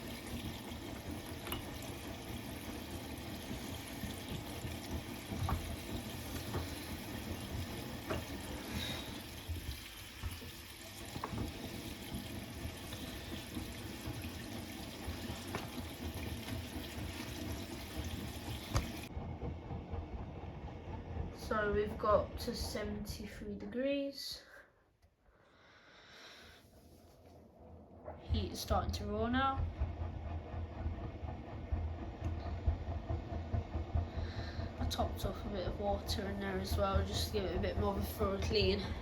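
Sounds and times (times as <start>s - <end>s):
water sloshing in washing machine drum: 0.0s - 19.1s.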